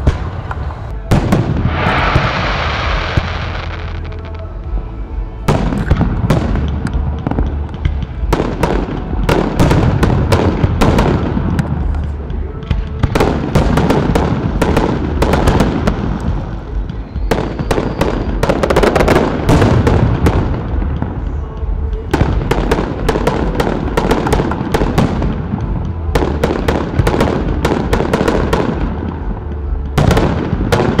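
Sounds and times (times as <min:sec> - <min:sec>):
low rumble: 0:00.0 - 0:31.0.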